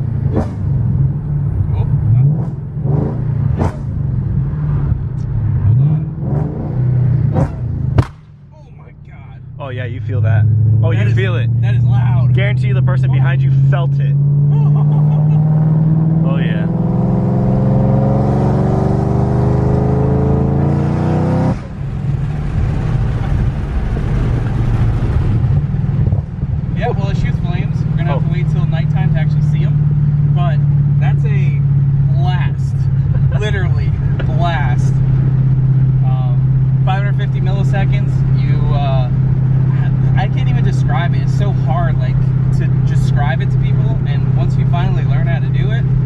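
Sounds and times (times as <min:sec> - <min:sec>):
car engine accelerating hard: 0:00.0 - 0:08.2, 0:09.4 - 0:46.0
sharp exhaust cracks: 0:06.4 - 0:08.6.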